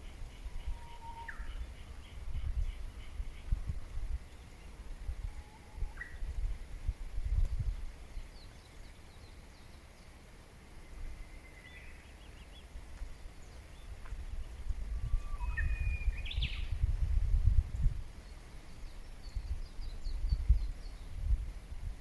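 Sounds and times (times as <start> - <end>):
wild birds chirping: 0.0 - 6.3, 6.9 - 16.9, 18.1 - 21.4
bird trill: 15.1 - 16.7.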